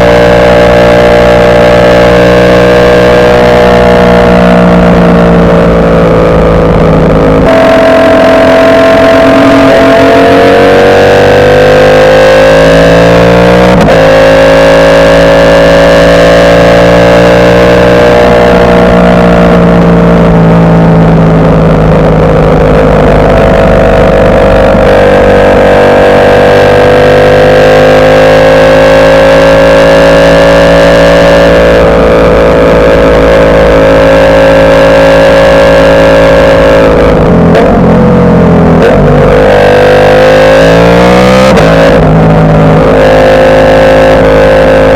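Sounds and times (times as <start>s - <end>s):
motorcycle engine running loud: 0.0s - 44.9s.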